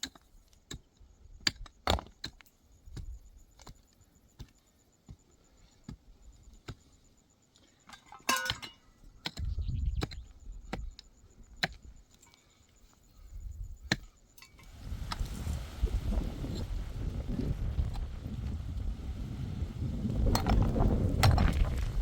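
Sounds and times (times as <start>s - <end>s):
short ringing clink: 8.1s - 8.9s.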